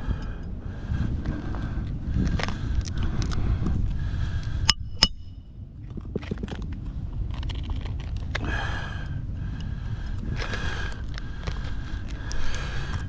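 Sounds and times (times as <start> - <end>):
wind rumbling on microphone: 0.0 - 13.0
sharp ringing clicks: 4.7 - 5.4
scrapes and clicks: 6.0 - 8.4.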